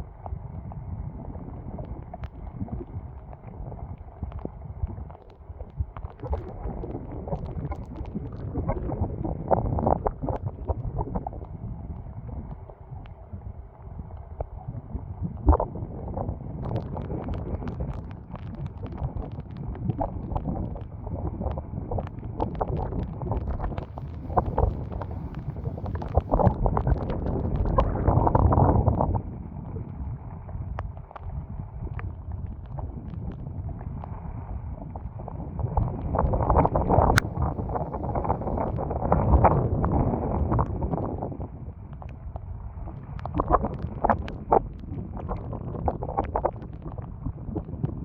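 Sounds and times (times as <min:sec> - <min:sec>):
strong wind buffeting microphone: 0:00.0 - 0:48.0.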